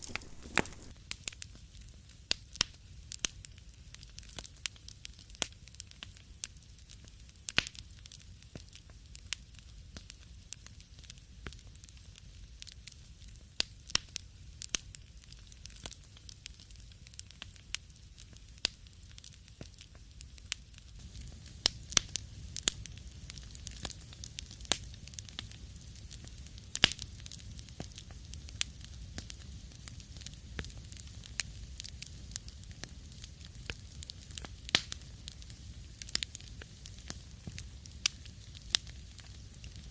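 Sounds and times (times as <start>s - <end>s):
low rumble of flames: 0.0s - 0.9s, 10.8s - 39.9s
wood fire crackling and popping: 0.0s - 39.9s.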